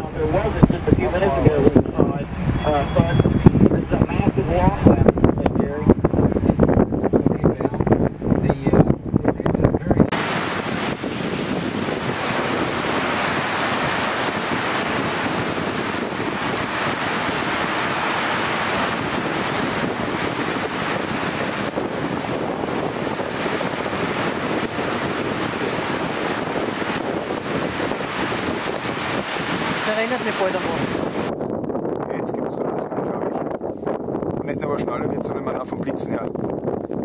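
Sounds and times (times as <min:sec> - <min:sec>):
wind buffeting microphone: 0:00.0 - 0:37.0
heavy rain pouring: 0:10.1 - 0:31.4.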